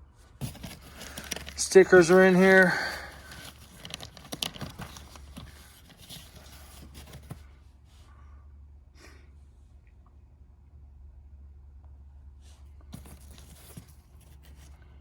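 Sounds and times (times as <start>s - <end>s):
packaging rustling and clicking: 0.4s - 7.4s, 13.0s - 14.7s.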